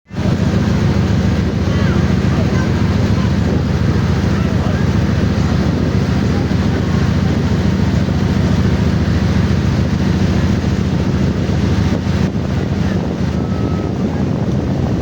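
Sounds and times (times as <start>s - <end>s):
boat engine droning: 0.0s - 15.0s
rushing water: 0.0s - 15.0s.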